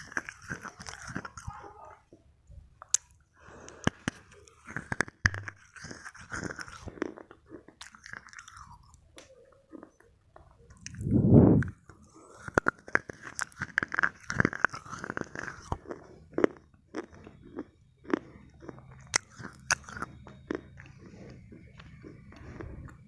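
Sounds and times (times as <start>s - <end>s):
slate pencil being chewed: 0.0s - 2.0s, 2.8s - 23.0s
sharp crunching snaps: 0.0s - 2.2s, 2.8s - 23.0s.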